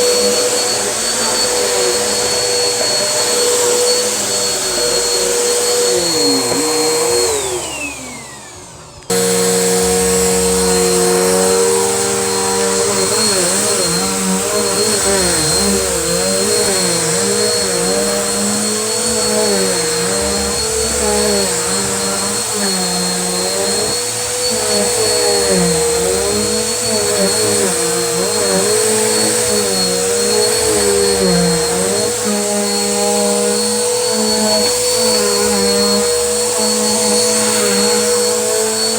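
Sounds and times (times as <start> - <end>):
vacuum cleaner motor whining: 0.0 - 38.9.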